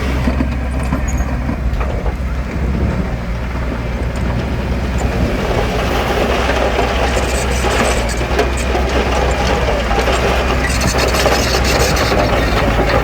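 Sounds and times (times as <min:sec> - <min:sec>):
diesel engine droning under load: 0:00.0 - 0:13.0.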